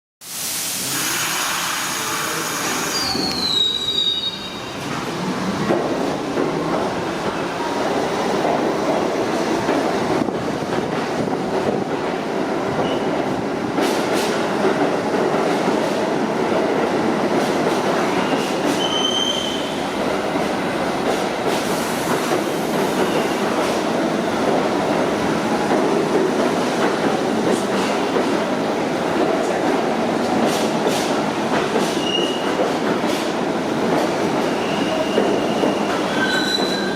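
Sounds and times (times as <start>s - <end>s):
subway train wheels rumbling: 0.2s - 36.9s
wheel squeal: 2.7s - 4.8s, 34.5s - 36.9s.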